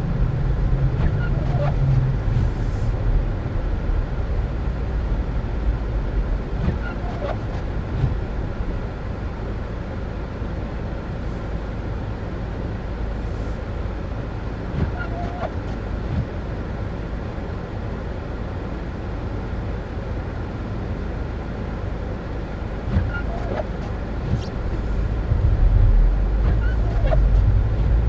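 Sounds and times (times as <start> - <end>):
car engine and tyre rumble: 0.0 - 28.0
faint squeaks: 23.0 - 28.0.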